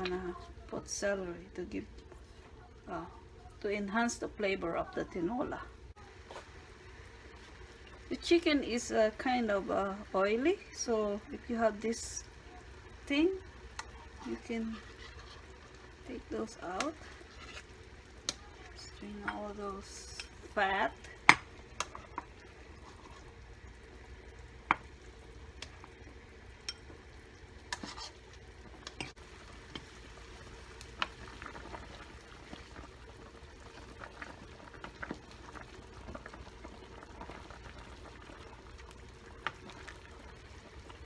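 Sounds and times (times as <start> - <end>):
soup bubbling in a pot: 0.0 - 41.0.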